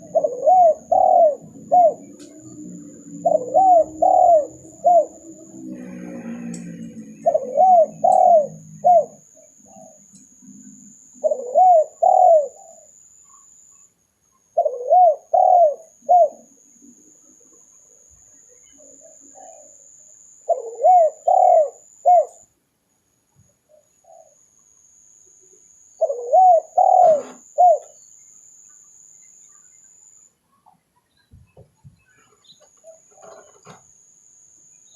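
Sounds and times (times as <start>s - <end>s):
dove cooing: 0.0s - 12.9s, 14.6s - 16.7s, 18.8s - 19.8s, 20.5s - 22.4s, 23.7s - 24.4s, 26.0s - 28.0s, 32.8s - 33.8s.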